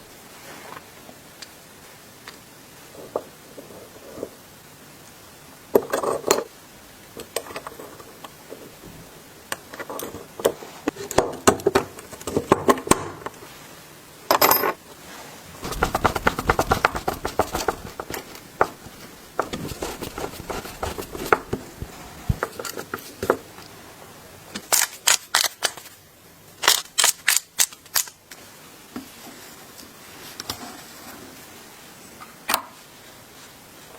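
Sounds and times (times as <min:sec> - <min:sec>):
tools clattering on workbench: 0:14.3 - 0:14.8.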